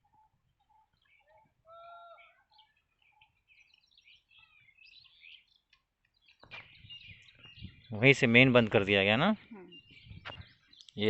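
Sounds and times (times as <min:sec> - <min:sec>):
loud clear bird call: 0:00.0 - 0:08.2
birds chirping: 0:00.0 - 0:11.0.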